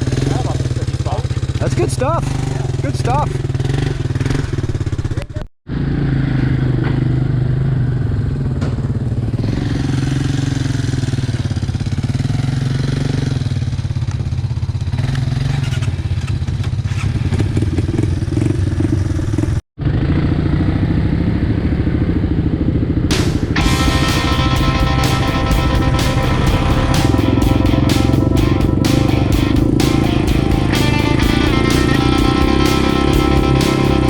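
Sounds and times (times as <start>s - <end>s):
atv engine running: 0.0s - 34.0s
music: 23.1s - 34.0s.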